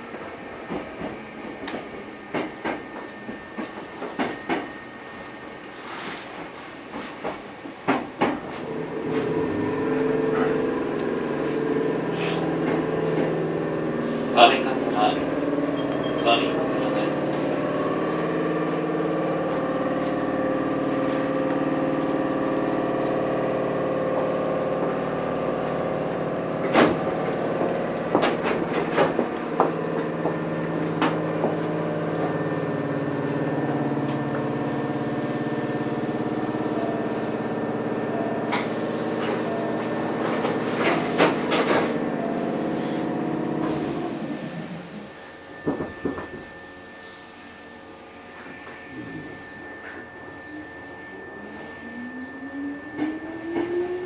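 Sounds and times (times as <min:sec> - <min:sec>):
electric train motor hum: 0:08.0 - 0:54.0
hiss: 0:38.5 - 0:41.1.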